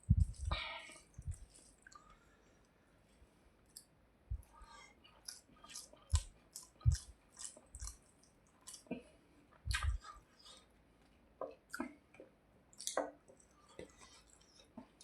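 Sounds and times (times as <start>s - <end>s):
wet mouth smacks and clicks: 9.7s - 10.0s.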